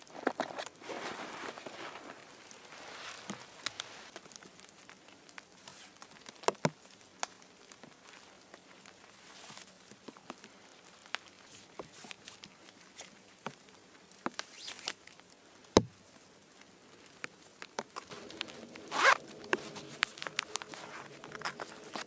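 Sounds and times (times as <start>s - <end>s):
clicks and rustles of handling: 0.0s - 15.4s
zipper being worked: 18.7s - 22.0s.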